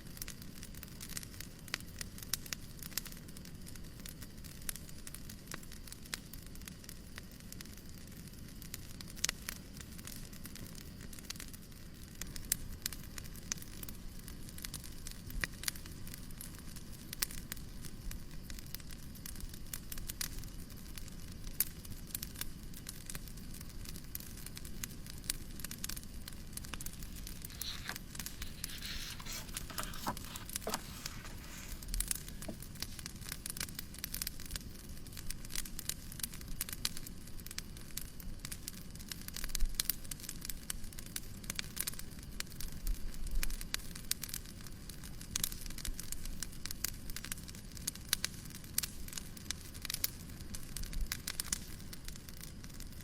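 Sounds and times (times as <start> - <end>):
fire crackling and popping: 0.0 - 53.0
soft rustle: 26.6 - 32.6.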